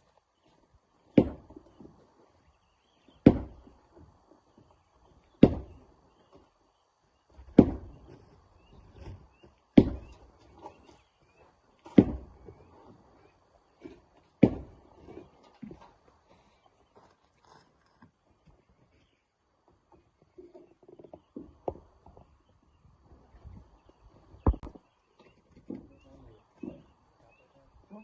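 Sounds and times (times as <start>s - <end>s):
hammer striking rock: 1.2s - 1.5s, 3.2s - 3.6s, 5.4s - 5.8s, 7.5s - 7.9s, 9.8s - 10.2s, 12.0s - 12.3s, 14.4s - 14.7s, 24.4s - 24.8s.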